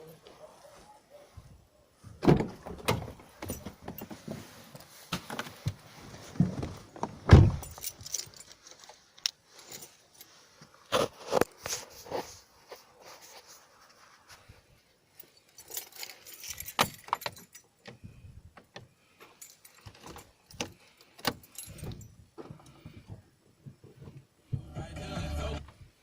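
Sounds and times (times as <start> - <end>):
keys jangling: 7.6 - 9.0, 15.2 - 17.9, 19.2 - 22.2.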